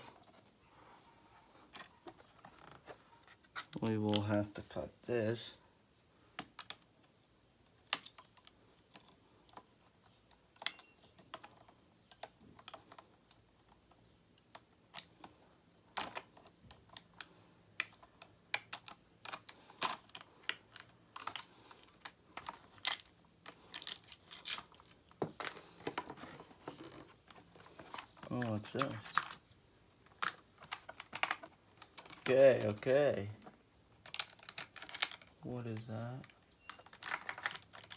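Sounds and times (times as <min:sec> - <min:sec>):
plastic packaging clicking: 0:07.8 - 0:09.6, 0:10.2 - 0:13.4, 0:15.9 - 0:26.2, 0:30.0 - 0:32.4, 0:34.0 - 0:37.9.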